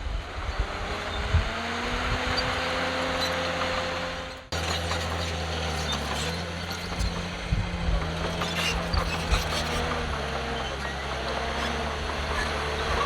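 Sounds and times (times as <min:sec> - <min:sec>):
diesel engine running: 0:00.0 - 0:13.0
low thumps and clanks: 0:04.5 - 0:13.0.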